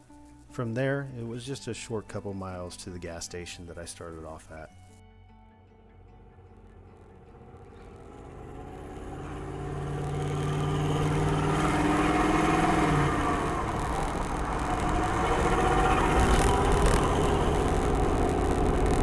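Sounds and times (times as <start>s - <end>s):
diesel engine accelerating: 6.0s - 19.0s.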